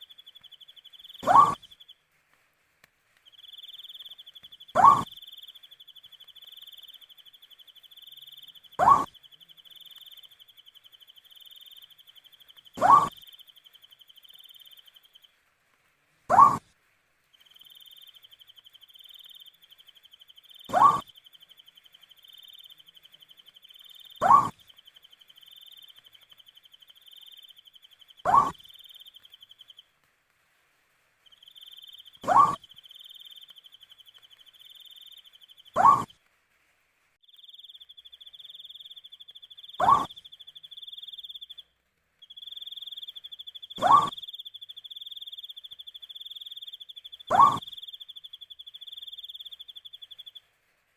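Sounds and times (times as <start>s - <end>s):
pulsing insect trill: 0.0s - 1.7s, 6.4s - 15.0s, 17.5s - 29.4s, 37.3s - 41.6s, 42.3s - 50.3s
owl hooting: 0.0s - 1.9s, 3.4s - 15.0s, 16.3s - 16.7s, 20.2s - 21.2s, 21.9s - 26.3s, 26.9s - 29.7s, 31.4s - 36.1s, 37.6s - 41.6s, 42.4s - 50.4s.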